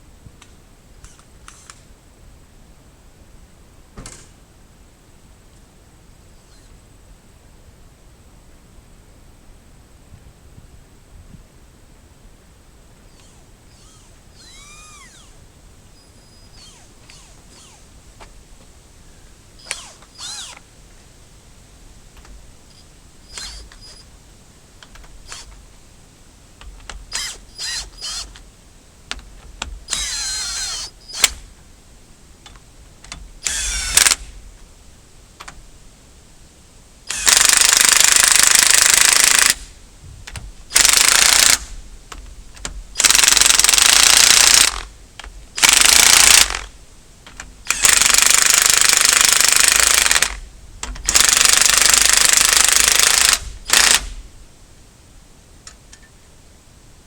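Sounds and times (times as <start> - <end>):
power tool whining: 13.1 - 18.0, 19.6 - 20.7, 22.7 - 24.1, 24.9 - 25.7, 26.6 - 28.4, 29.6 - 31.5, 33.4 - 34.4, 37.1 - 39.7, 40.7 - 41.8, 42.9 - 46.8, 47.7 - 54.2.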